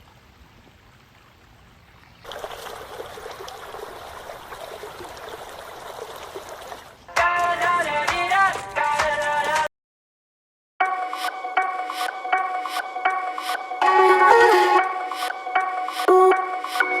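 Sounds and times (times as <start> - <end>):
water running and trickling: 0.0 - 7.1
water dripping: 0.0 - 8.4.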